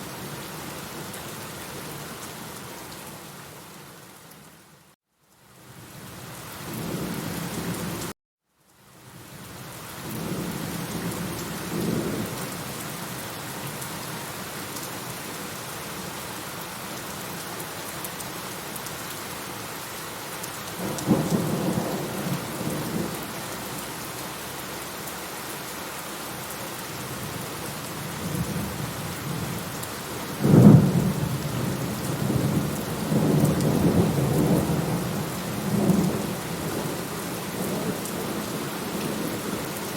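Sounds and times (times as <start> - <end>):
steady rain: 0.0 - 39.9
thunder rumbling: 30.4 - 37.0.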